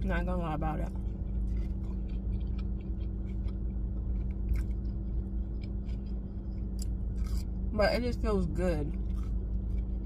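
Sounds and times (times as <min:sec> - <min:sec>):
car running hum: 0:00.0 - 0:10.0
person chewing food: 0:00.8 - 0:07.7, 0:08.9 - 0:10.0.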